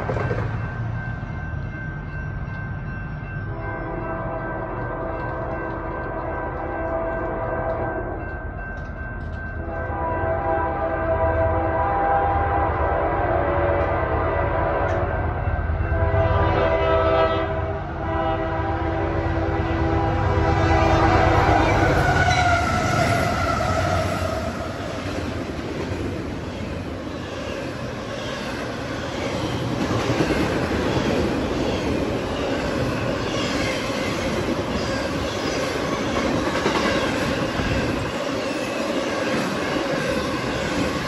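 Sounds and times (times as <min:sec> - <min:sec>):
train wheels on rails: 0:00.0 - 0:17.2, 0:17.9 - 0:41.0
locomotive air horn blasts: 0:03.6 - 0:05.5, 0:06.1 - 0:08.1, 0:09.7 - 0:15.1, 0:15.9 - 0:24.7.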